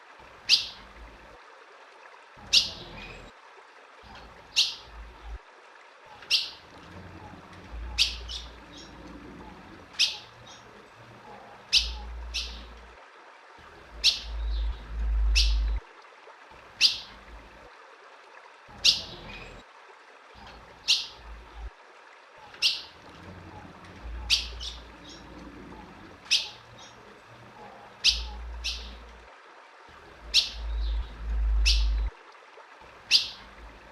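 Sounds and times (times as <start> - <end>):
bird chirping calls: 0.5 - 0.8, 2.4 - 3.3, 4.1 - 5.0, 6.2 - 6.6, 7.2 - 12.8, 13.9 - 15.8, 16.8 - 17.2, 18.8 - 19.6, 20.4 - 21.6, 22.4 - 22.9, 23.5 - 27.0, 27.6 - 29.1, 30.2 - 32.1, 33.1 - 33.5
low rumble: 14.3 - 15.8.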